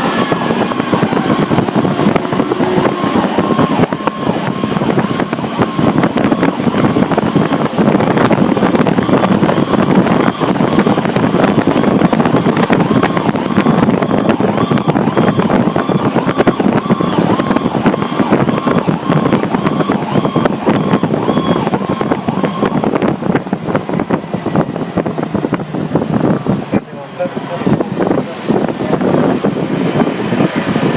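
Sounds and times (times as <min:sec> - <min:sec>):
fire truck engine rumble: 0:00.0 - 0:30.9
repeating electronic beep: 0:00.1 - 0:07.0, 0:09.0 - 0:23.9.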